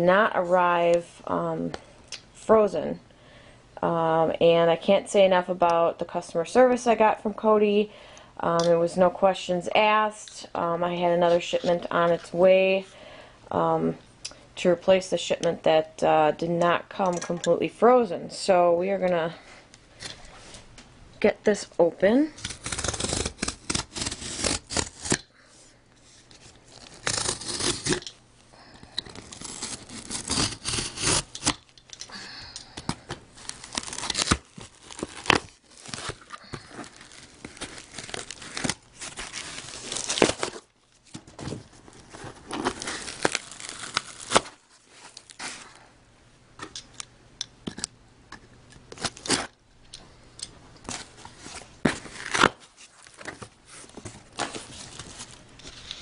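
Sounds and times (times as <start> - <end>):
cardboard box ripping: 22.4 - 25.2, 26.7 - 28.0, 29.2 - 31.6, 33.4 - 40.6, 41.4 - 44.6, 51.8 - 53.4
cardboard crinkling and snaps: 22.4 - 25.3, 29.0 - 32.1, 32.8 - 45.6, 50.8 - 56.0.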